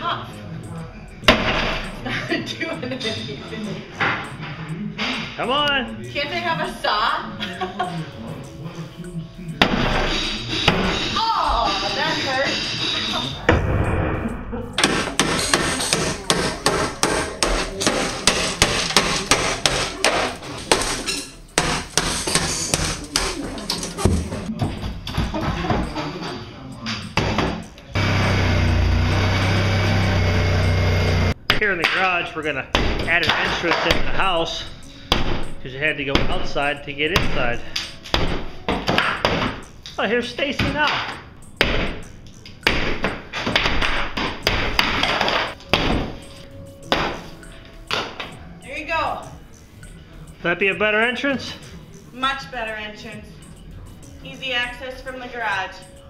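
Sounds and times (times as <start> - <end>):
hammer striking: 1.2 - 2.0, 9.6 - 11.8, 13.5 - 23.4, 32.7 - 39.7, 40.6 - 47.3.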